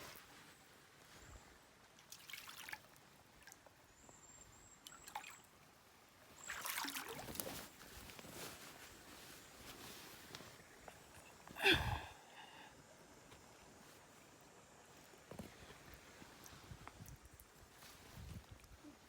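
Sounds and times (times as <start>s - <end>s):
creek water trickling: 1.7s - 8.8s
water splashes: 2.1s - 3.6s, 6.4s - 7.5s.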